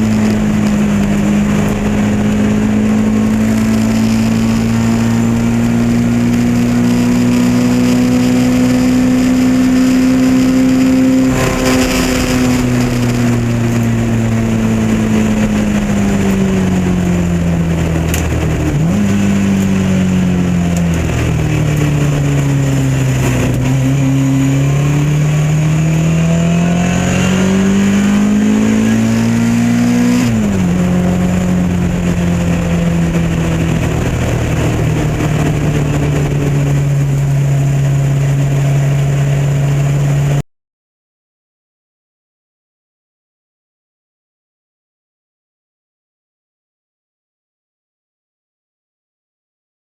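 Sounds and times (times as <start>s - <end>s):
race car engine revving: 0.0s - 40.4s.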